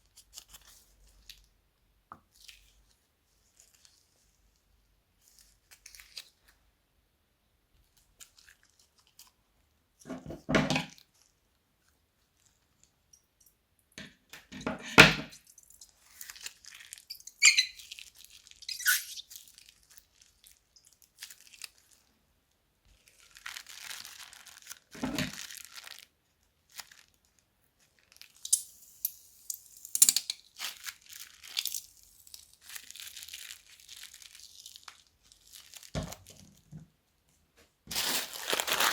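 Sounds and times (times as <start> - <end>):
plastic bags crinkling: 15.8 - 22.1, 23.0 - 29.0, 29.7 - 36.8, 37.9 - 38.9.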